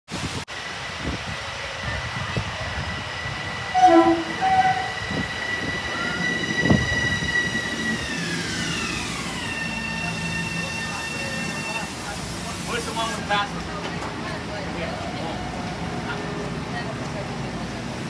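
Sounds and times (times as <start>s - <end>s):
electric train motor whine: 3.0s - 11.9s
train horn toots: 3.7s - 5.0s.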